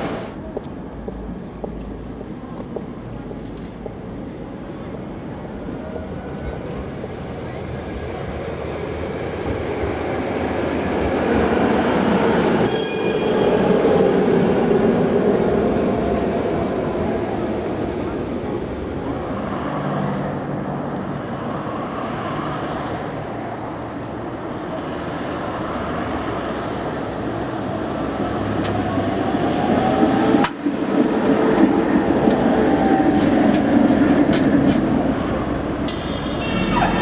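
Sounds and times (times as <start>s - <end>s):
tram wheels rumbling on rails: 0.0s - 37.0s.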